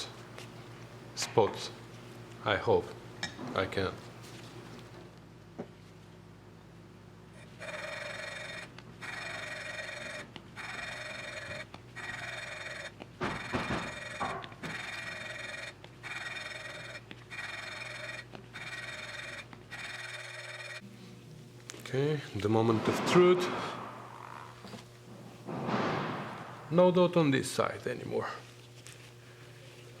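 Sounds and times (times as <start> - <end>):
loud knocks: 13.2 - 14.8, 22.7 - 24.2, 25.4 - 26.9.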